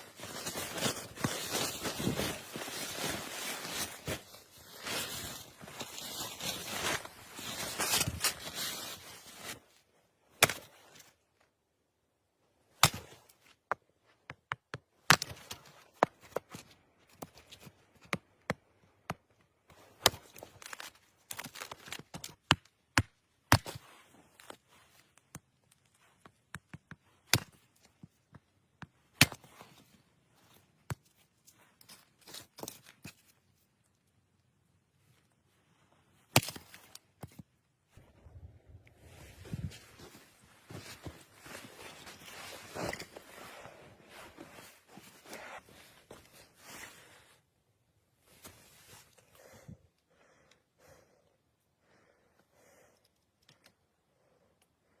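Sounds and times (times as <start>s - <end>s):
rustling and crunching: 0.0s - 9.8s, 35.8s - 47.3s.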